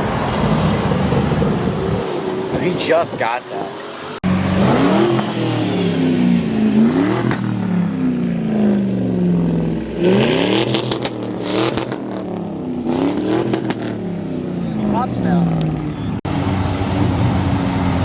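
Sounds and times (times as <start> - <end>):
car engine revving: 3.8 - 18.0
exhaust popping and crackling: 4.2 - 18.0.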